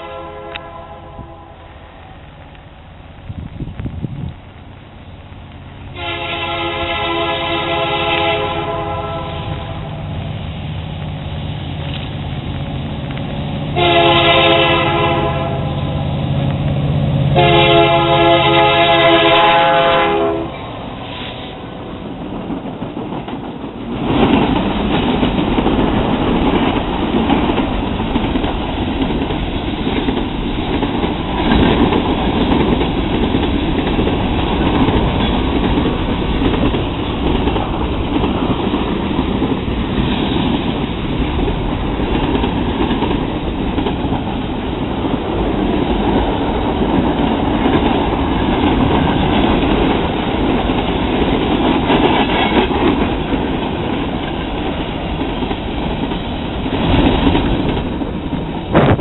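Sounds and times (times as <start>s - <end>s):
freight train rumbling past: 0.0s - 59.0s
wheels clicking over rail joints: 10.8s - 13.8s, 21.9s - 59.0s.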